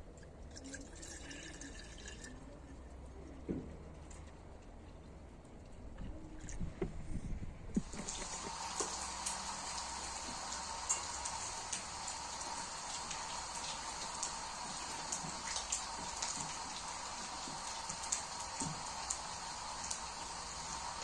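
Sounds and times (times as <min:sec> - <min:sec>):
steady rain falling: 0:07.8 - 0:21.0.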